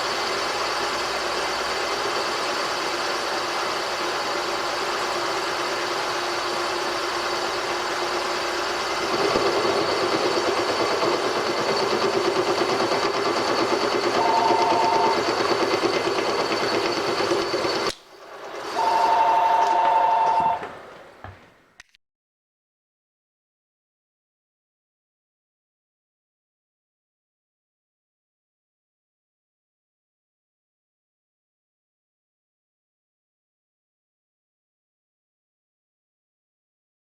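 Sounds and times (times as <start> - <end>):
workshop machine running: 0.0 - 21.4
two-note electronic tone: 14.1 - 15.2, 18.8 - 20.6.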